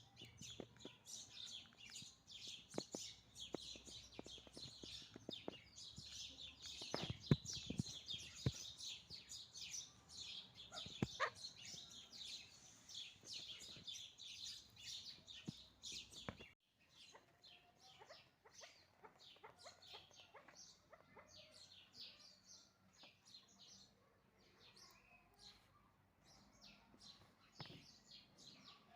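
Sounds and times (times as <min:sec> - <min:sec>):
partridges chirping: 0:00.0 - 0:22.2.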